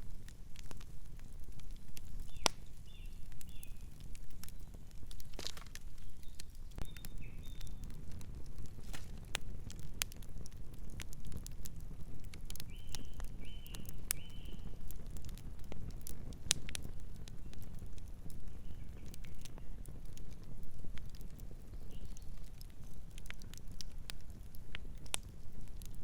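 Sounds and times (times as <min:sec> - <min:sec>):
campfire crackling and popping: 0:00.0 - 0:26.0
bird chirps: 0:06.0 - 0:07.8.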